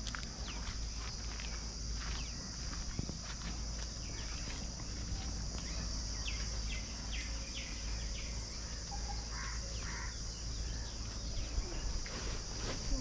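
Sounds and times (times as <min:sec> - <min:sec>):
high-pitched insect drone: 0:00.0 - 0:13.0
lower bird calls: 0:04.0 - 0:12.2.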